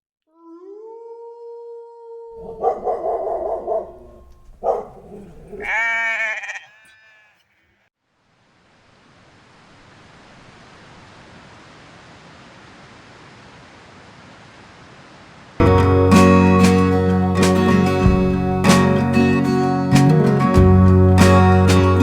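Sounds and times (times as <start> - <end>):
flock bleating: 5.3 - 7.6
steady rushing hiss: 8.3 - 22.0.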